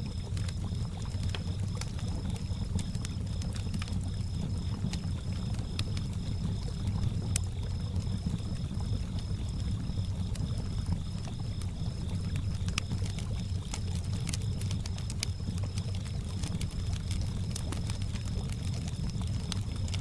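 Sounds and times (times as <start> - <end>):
campfire crackling and popping: 0.0 - 20.0
crickets chirping: 0.0 - 20.0.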